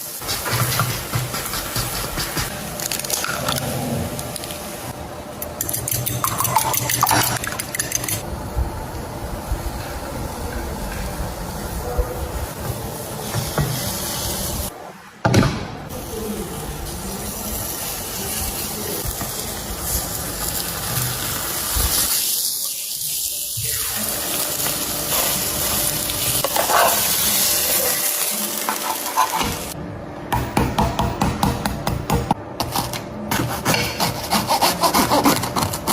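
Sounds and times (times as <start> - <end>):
food sizzling in a pan: 0.0 - 1.0, 16.0 - 29.8.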